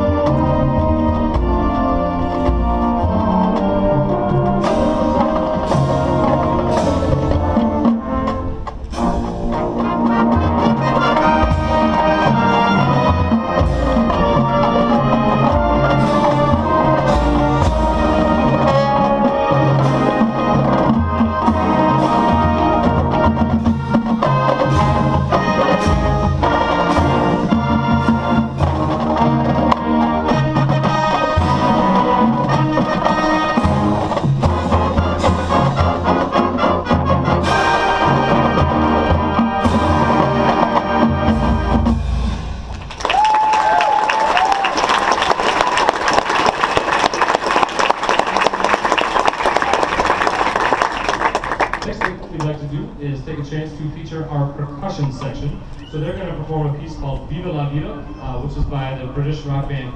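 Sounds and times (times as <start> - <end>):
marching band brass: 0.0 - 58.1
drum hits: 4.4 - 43.5.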